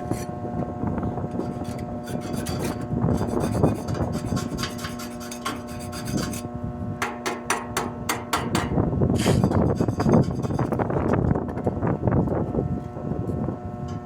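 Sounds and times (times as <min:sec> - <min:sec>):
hand tool scraping metal: 0:00.0 - 0:00.4, 0:01.3 - 0:11.2
steady hum: 0:00.0 - 0:14.0.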